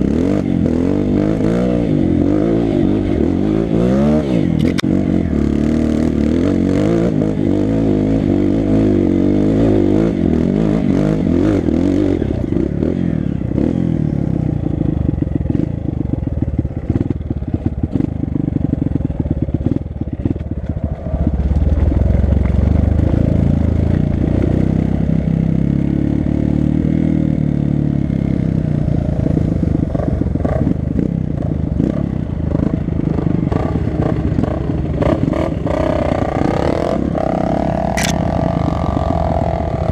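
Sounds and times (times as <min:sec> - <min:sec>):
dirt bike engine revving: 0:00.0 - 0:15.7, 0:31.7 - 0:39.9.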